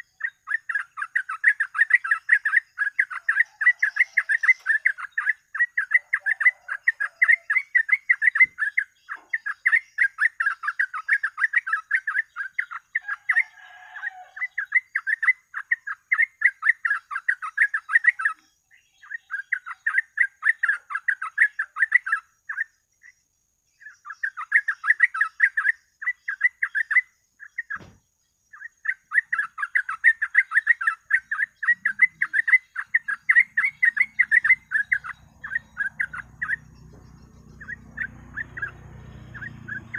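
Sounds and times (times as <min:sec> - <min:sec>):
bulbul singing rapid chattering: 0:00.0 - 0:13.1, 0:23.9 - 0:39.9.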